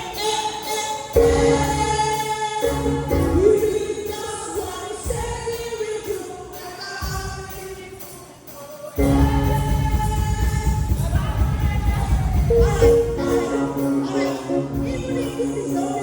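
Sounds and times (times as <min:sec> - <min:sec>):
choir singing gospel song: 0:00.0 - 0:16.0
instrumental accompaniment: 0:00.7 - 0:05.8, 0:09.0 - 0:16.0.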